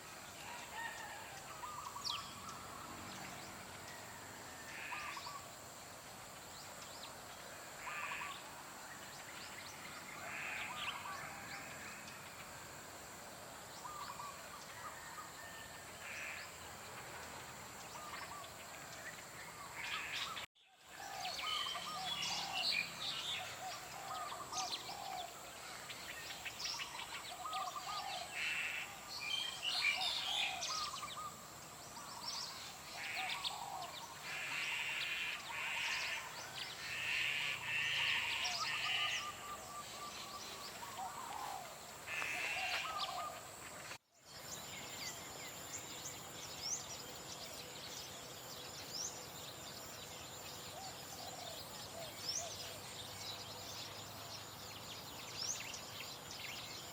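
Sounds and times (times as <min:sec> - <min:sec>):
birds chirping and singing: 0:17.3 - 0:56.9.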